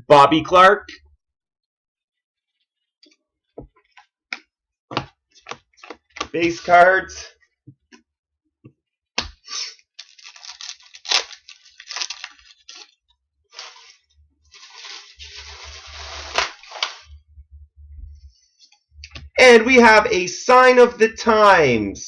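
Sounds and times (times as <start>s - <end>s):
card wrappers crinkling: 10.0s - 17.1s.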